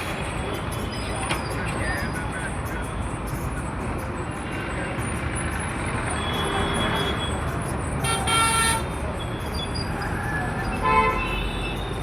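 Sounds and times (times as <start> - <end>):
road traffic: 0.0 - 12.0
vehicle horn honking: 8.0 - 9.0, 10.8 - 11.7.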